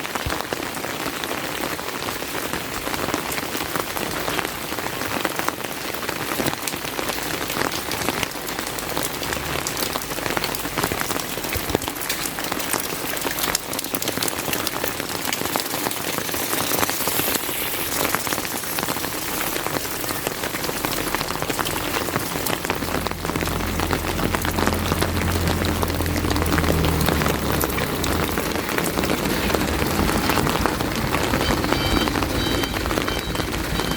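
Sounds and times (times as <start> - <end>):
heavy rain: 0.0 - 33.9
low engine hum: 19.7 - 33.9.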